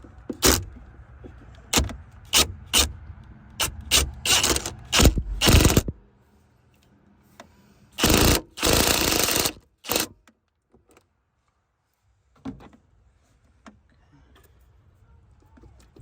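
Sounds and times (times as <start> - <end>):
ratchet wrench clicking: 1.8 - 2.9, 3.6 - 5.9, 8.0 - 10.1.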